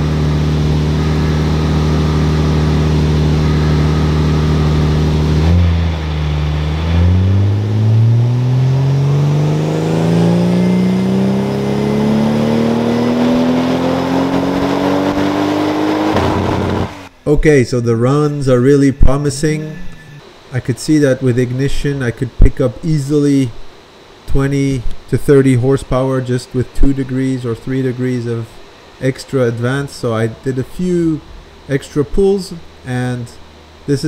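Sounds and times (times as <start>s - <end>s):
car engine revving on dyno: 0.0s - 17.2s.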